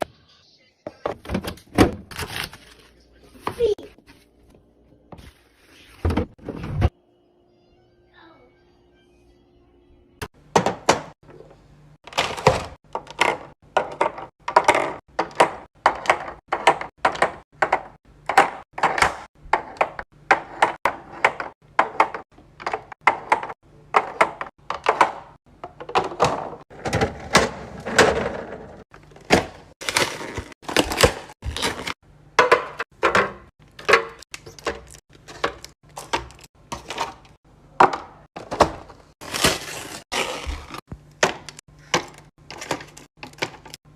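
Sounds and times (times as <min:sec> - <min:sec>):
containers knocking on fridge shelves: 0:10.5 - 0:11.2, 0:12.2 - 0:37.2, 0:37.8 - 0:39.1.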